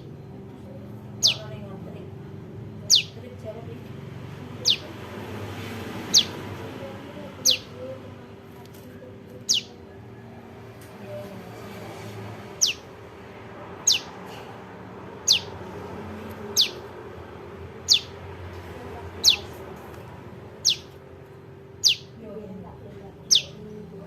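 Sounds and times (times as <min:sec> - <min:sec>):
bird chirps sweeping downward: 0:01.2 - 0:01.5, 0:02.9 - 0:03.2, 0:04.6 - 0:04.9, 0:06.1 - 0:06.4, 0:07.4 - 0:07.7, 0:09.4 - 0:09.8, 0:12.6 - 0:12.9, 0:13.8 - 0:14.2, 0:15.2 - 0:15.6, 0:16.5 - 0:16.9, 0:17.8 - 0:18.2, 0:20.6 - 0:21.0, 0:21.8 - 0:22.2.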